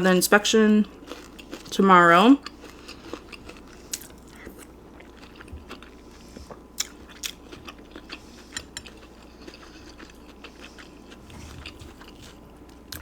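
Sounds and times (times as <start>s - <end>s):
food crunching: 0.8s - 13.0s
wet chewing mouth clicks: 3.9s - 12.2s.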